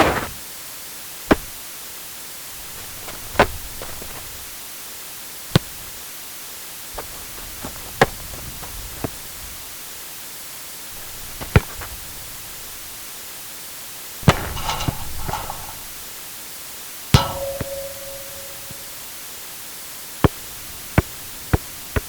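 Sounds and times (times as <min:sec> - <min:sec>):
steady hiss: 0:00.0 - 0:22.0
ball kicked: 0:01.3 - 0:01.6, 0:14.2 - 0:15.9, 0:17.2 - 0:18.9
ball bouncing: 0:14.2 - 0:15.9, 0:17.2 - 0:18.9
rustling: 0:14.2 - 0:16.0
ringing tone: 0:17.2 - 0:19.0.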